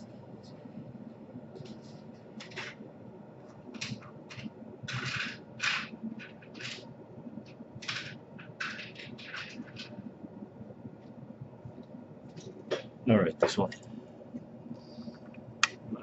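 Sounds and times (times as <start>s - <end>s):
small parts clicking and scraping: 3.5s - 10.0s.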